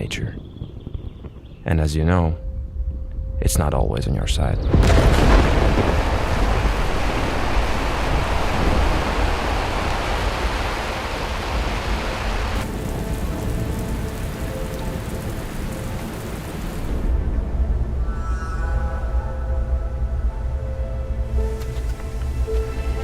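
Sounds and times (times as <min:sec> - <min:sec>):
heavy rain falling: 0:04.8 - 0:17.2.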